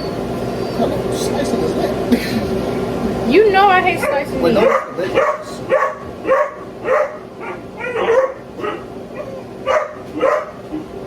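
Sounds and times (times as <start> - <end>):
dog barking: 4.0 - 10.9.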